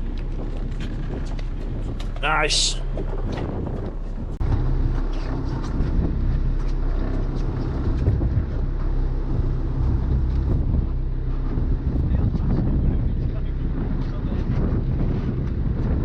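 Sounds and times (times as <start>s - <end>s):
boat engine humming: 0.0s - 16.0s
water noise: 0.0s - 16.0s
wind: 0.0s - 16.0s.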